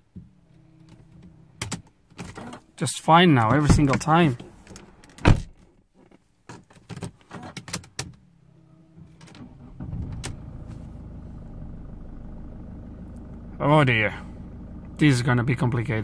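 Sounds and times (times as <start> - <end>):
diesel engine starting and idling: 9.4 - 16.0.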